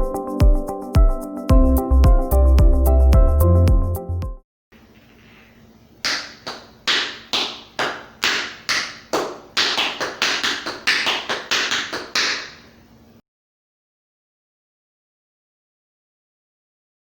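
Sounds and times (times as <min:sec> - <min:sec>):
tap shoes striking floor: 0:06.1 - 0:12.6.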